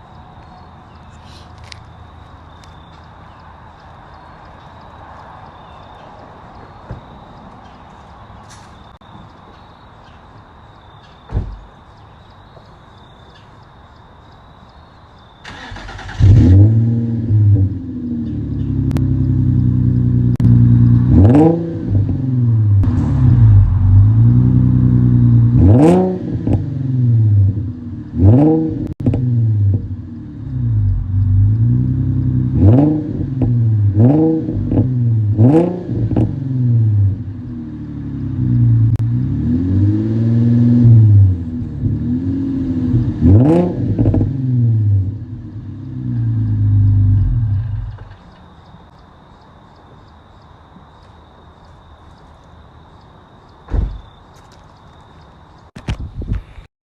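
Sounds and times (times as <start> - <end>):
thump: 11.3 - 11.7, 53.7 - 54.1
car engine starting and revving: 15.4 - 48.4.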